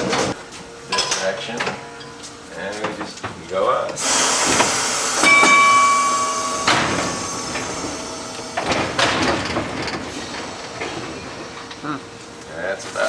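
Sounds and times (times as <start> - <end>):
electric trolley whine: 4.0 - 13.0
rattling noise: 5.4 - 11.8.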